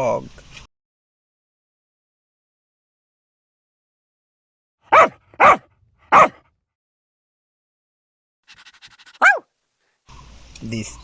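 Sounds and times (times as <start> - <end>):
dog barking: 4.9 - 6.5, 9.1 - 9.5.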